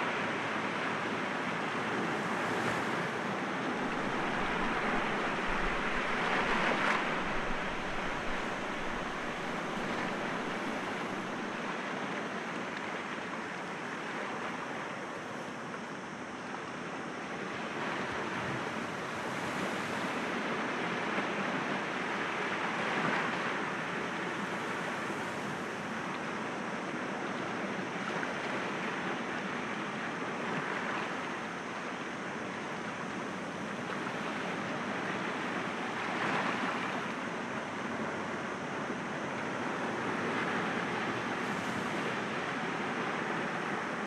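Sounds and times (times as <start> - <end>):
sea waves breaking on rocks: 3.8 - 11.3.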